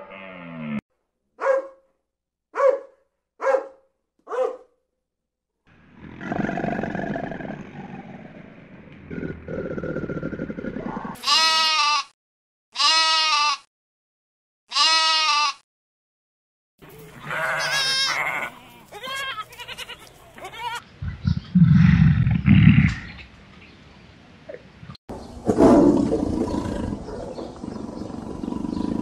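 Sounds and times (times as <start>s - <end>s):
goat kids bleating: 11.2s - 12.1s, 12.8s - 13.7s, 14.7s - 15.6s, 17.1s - 20.8s.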